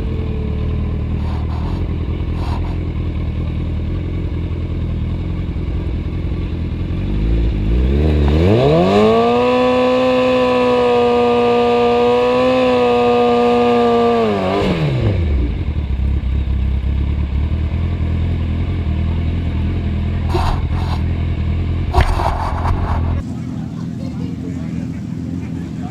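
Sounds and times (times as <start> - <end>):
motorcycle engine revving: 0.0 - 25.9.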